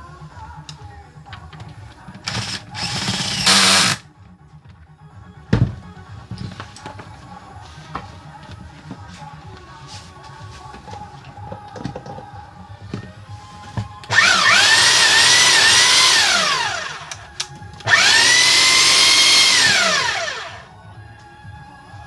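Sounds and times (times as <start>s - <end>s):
power tool motor whining: 2.3s - 4.0s, 14.1s - 17.2s, 17.8s - 20.6s.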